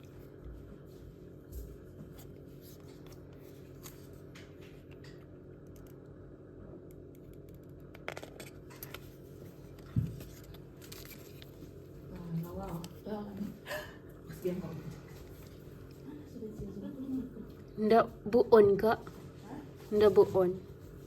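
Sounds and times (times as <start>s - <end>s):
steady low hum: 0.0s - 21.0s
clicks and scratching of packaging: 9.8s - 11.7s.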